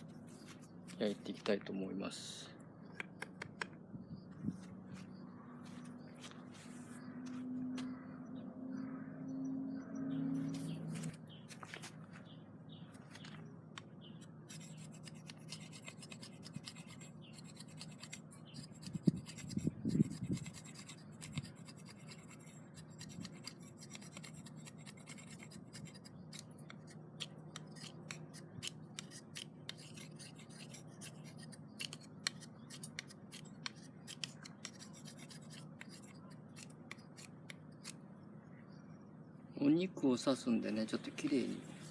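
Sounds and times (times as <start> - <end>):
hands scratching and scraping: 14.5 - 38.0.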